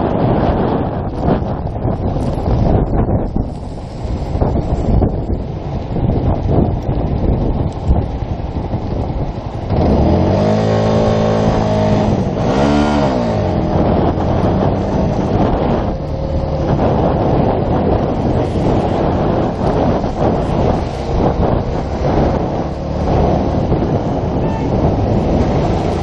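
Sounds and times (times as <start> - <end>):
wind buffeting microphone: 0.0 - 26.0
motorcycle engine revving: 8.9 - 26.0.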